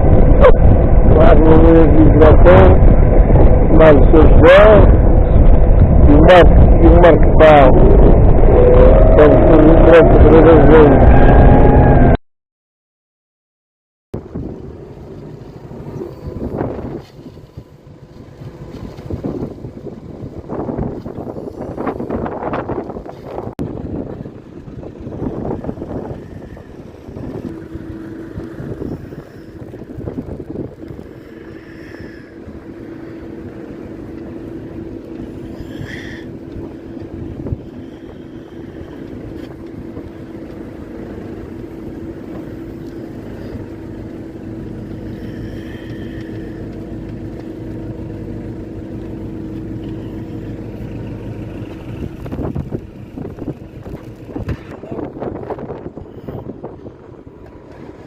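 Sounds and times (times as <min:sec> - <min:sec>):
vehicle engine droning: 0:00.0 - 0:12.2, 0:14.2 - 0:58.0
wind buffeting microphone: 0:00.0 - 0:12.2, 0:14.2 - 0:58.0.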